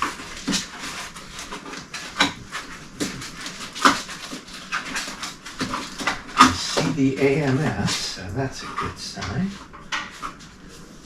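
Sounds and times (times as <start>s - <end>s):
packing material rustling: 0.0s - 8.3s.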